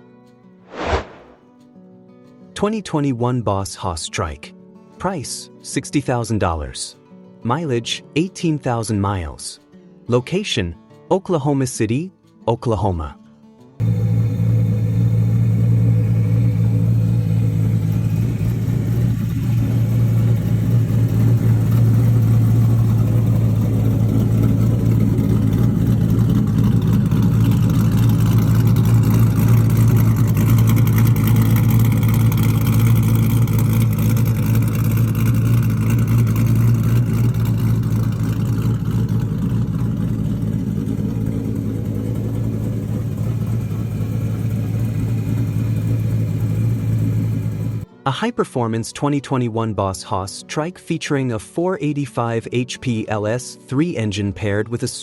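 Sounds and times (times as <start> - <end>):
trike engine running: 13.8 - 47.8.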